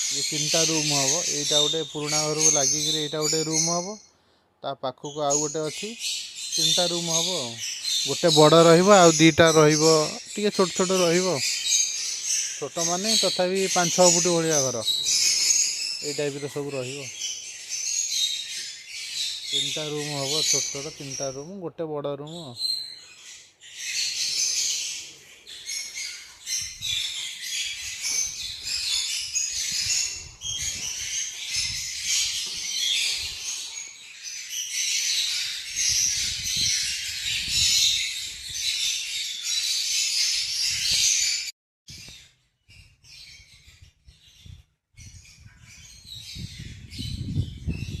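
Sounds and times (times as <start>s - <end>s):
birds chattering and chirping: 0.0s - 48.0s.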